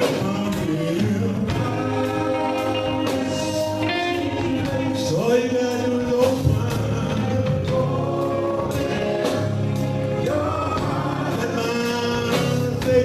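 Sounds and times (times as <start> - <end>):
band with guitar and beat: 0.0 - 13.0
men singing gospel: 0.0 - 13.0.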